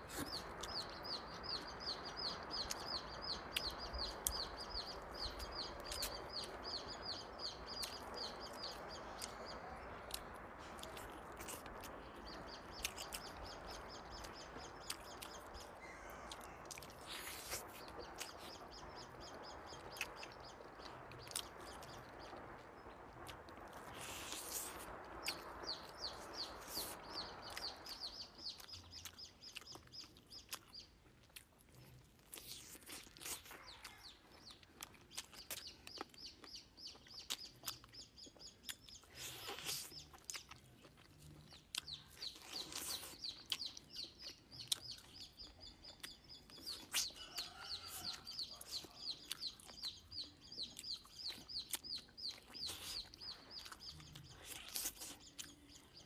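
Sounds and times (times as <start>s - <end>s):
bird chirping: 0.0s - 56.0s
chewing and lip-smacking: 12.7s - 13.4s, 14.8s - 18.6s, 28.6s - 56.0s.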